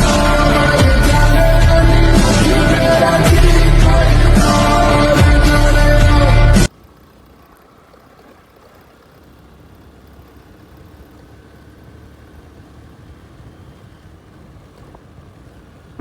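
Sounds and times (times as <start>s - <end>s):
motorcycle engine rumbling: 0.0s - 16.0s.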